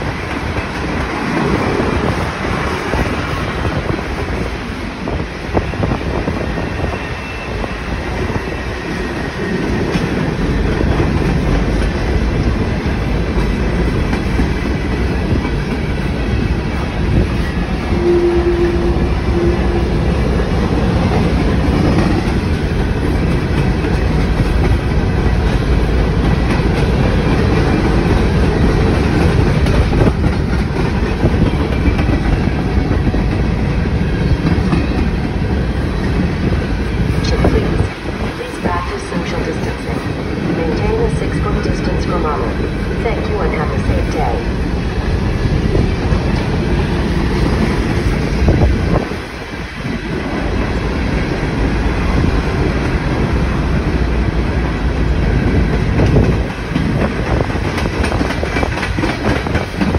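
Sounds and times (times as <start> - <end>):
train wheels clacking on rail joints: 20.8 - 37.2, 55.4 - 59.9.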